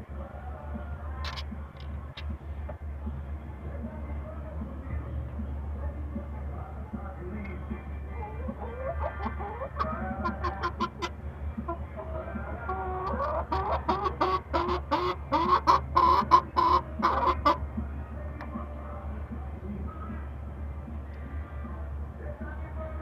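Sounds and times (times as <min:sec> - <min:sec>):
chicken clucking: 0:07.3 - 0:19.0.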